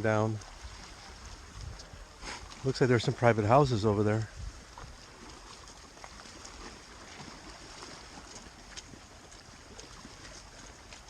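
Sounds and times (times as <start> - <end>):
lake water: 0.0 - 11.0
wind: 0.0 - 11.0
faint ticks: 1.2 - 2.6.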